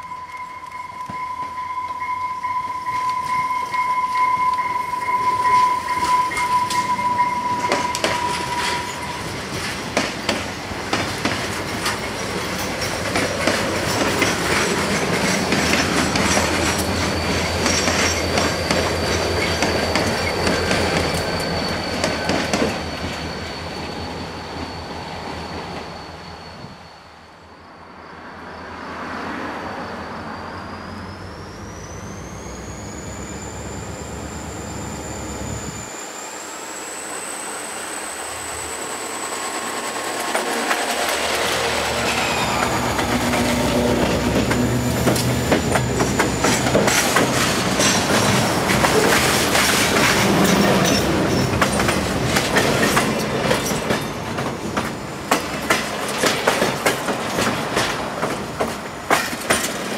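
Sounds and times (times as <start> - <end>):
steady high ringing tone: 0.0 - 10.8, 29.7 - 54.2
steel wheels clicking over rail joints: 2.9 - 23.2, 39.6 - 59.9
diesel locomotive rumble: 30.1 - 59.9.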